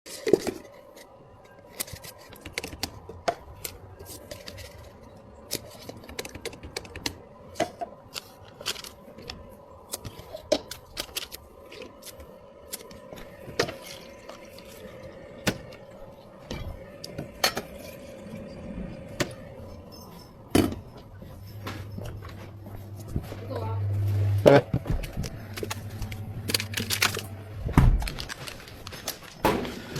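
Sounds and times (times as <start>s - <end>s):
steady low hum: 0.3s - 29.9s
cups and utensils clattering: 16.5s - 18.6s.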